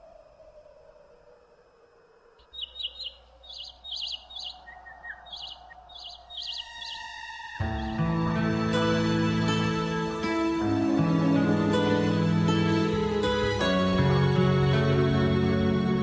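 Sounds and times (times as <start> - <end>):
soft sustained musical tone: 0.0 - 16.0
birds chirping: 2.4 - 13.6.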